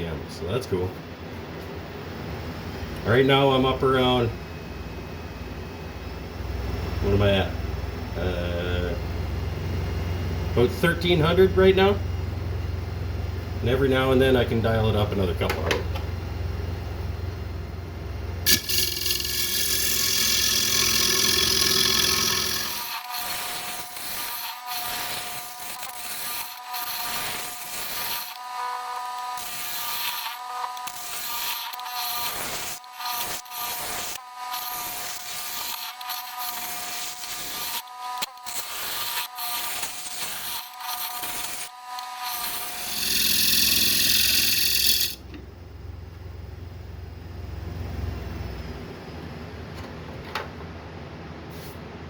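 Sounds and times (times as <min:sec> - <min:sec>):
low hum: 0:03.8 - 0:18.7, 0:44.9 - 0:52.0
lathe motor hum: 0:09.1 - 0:46.3
turning tool cutting wood: 0:18.5 - 0:45.4.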